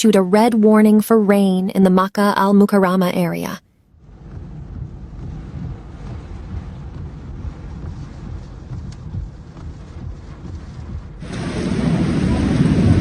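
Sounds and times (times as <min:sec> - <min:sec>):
low thunder rumble: 0:04.0 - 0:13.0
wind and rain hissing: 0:04.0 - 0:13.0.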